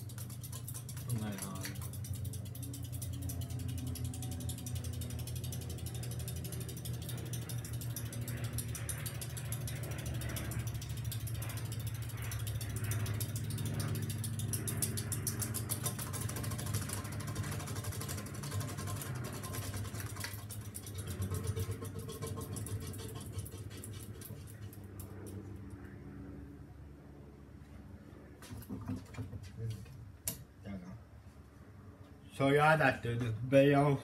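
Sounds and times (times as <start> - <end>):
fan ticking rattle: 0.0 - 25.8
ceiling fan motor hum: 0.0 - 34.0.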